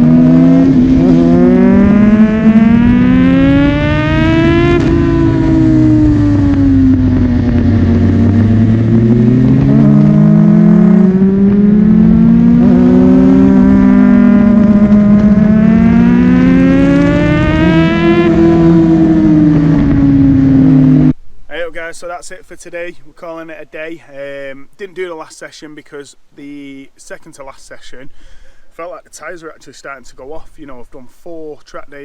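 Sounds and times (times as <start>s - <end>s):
motorcycle engine revving: 0.0s - 21.2s.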